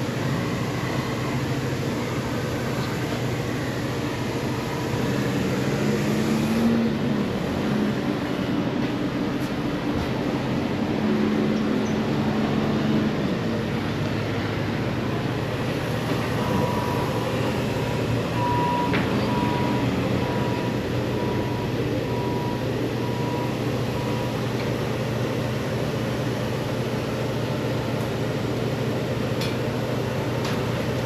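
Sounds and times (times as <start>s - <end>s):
engine humming: 0.0s - 31.0s
high beeps: 18.3s - 24.3s.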